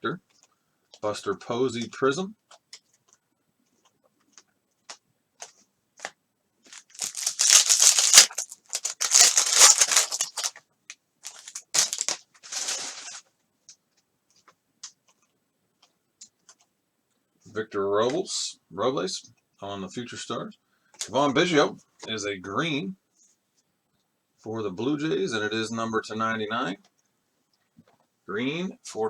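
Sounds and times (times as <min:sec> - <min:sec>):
foil wrapper tearing: 0:06.7 - 0:10.6, 0:11.2 - 0:13.2.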